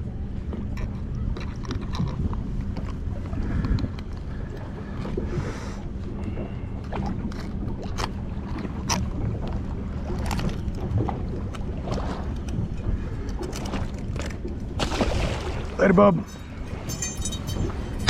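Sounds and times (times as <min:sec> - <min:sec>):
low hum: 0:00.0 - 0:18.0
water: 0:00.0 - 0:18.0.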